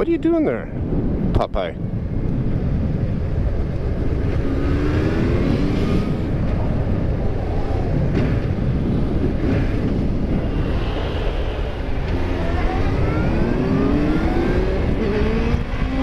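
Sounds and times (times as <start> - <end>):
wind and road noise: 0.0 - 16.0
motorcycle engine accelerating: 3.1 - 10.9, 11.8 - 16.0.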